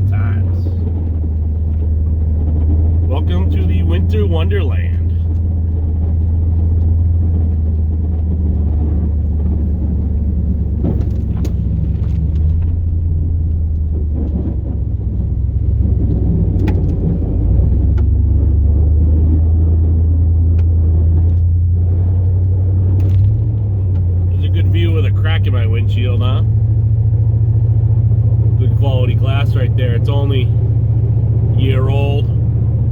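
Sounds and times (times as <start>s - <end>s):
truck engine rumble: 0.0s - 32.9s.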